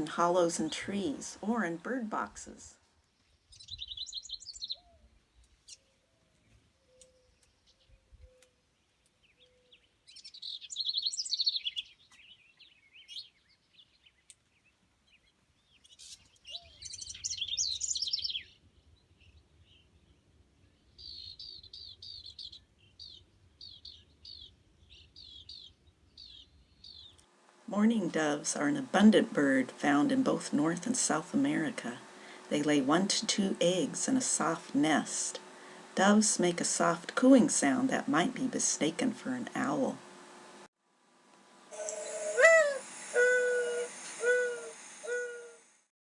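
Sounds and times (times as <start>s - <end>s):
wren singing: 3.2s - 27.2s.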